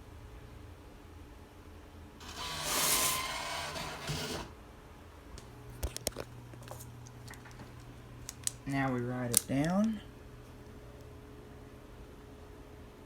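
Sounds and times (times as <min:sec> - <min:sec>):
mechanical whirring: 0:02.2 - 0:04.5.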